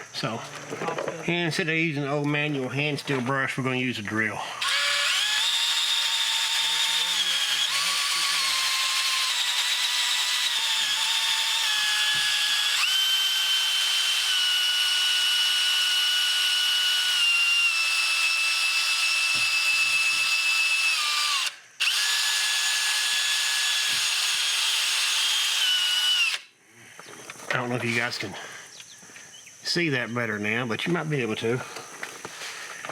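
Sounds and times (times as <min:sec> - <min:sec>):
electric drill with wire brush: 0:04.6 - 0:26.5.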